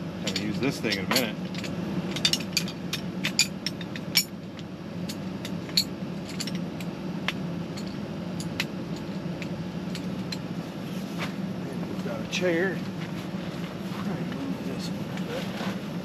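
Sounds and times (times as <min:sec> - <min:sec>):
air conditioner humming: 0:00.0 - 0:16.0.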